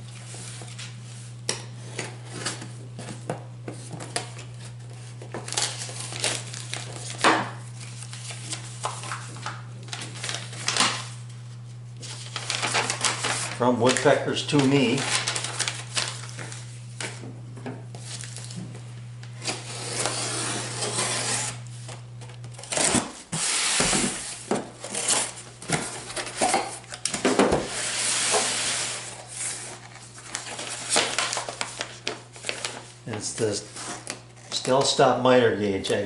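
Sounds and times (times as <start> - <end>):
packing material rustling: 4.4 - 17.2, 18.0 - 18.6, 29.0 - 34.5
cardboard flaps scraping: 12.0 - 17.1.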